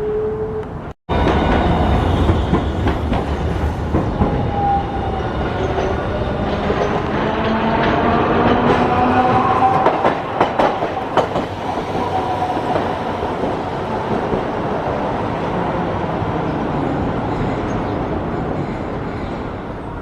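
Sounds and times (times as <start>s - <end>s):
streetcar rolling rumble: 0.0s - 20.0s
streetcar whine: 0.0s - 20.0s.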